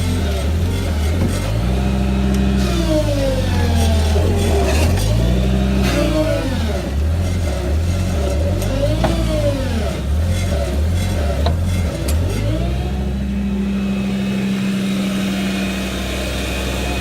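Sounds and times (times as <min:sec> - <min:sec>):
hydraulic pump whine: 0:00.0 - 0:17.0
truck engine revving: 0:00.0 - 0:17.0.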